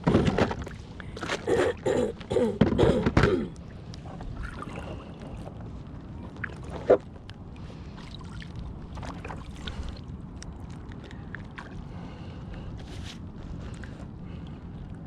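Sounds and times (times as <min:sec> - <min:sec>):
wind and water hiss: 0:03.5 - 0:15.0.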